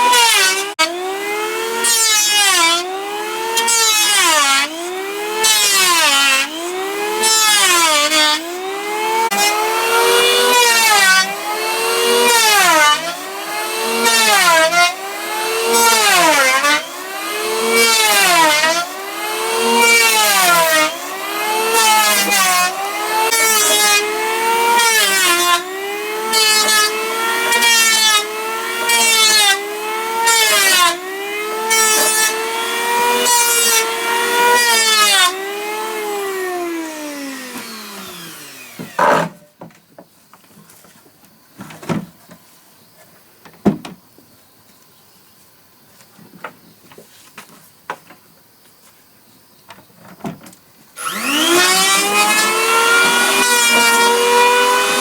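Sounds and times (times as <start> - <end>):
electric hand planer on wood: 0.0 - 39.4, 51.0 - 55.0.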